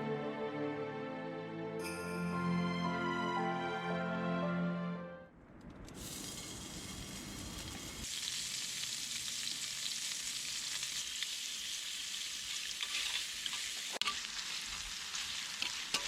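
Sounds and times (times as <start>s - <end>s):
food sizzling in a pan: 6.0s - 16.0s.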